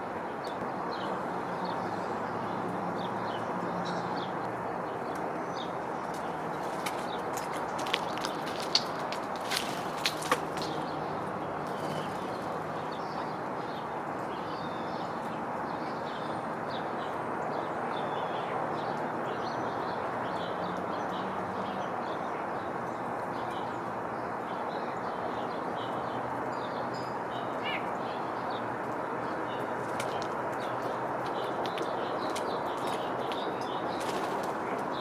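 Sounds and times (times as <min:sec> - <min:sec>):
small songbirds chirping: 0:00.2 - 0:35.0.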